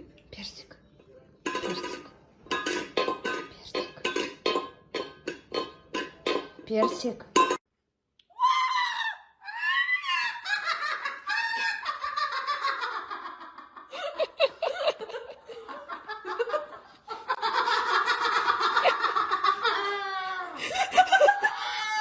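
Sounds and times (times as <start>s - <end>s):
people laughing: 9.6s - 22.0s.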